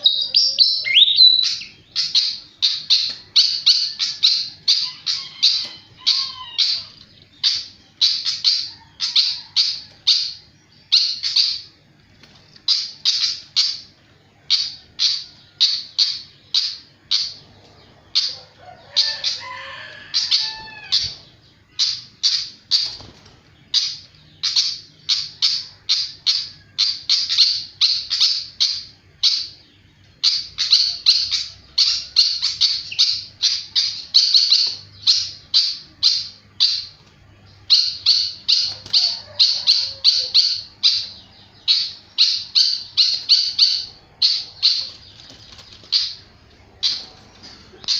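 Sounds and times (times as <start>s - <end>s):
bird warbling: 0.0s - 11.8s, 12.5s - 47.9s
bird chirping: 0.0s - 47.9s.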